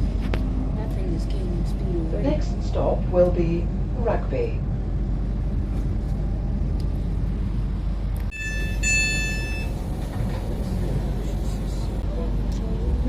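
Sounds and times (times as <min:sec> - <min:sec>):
train rumble inside carriage: 0:00.0 - 0:13.0
two-note electronic chime: 0:08.3 - 0:09.8.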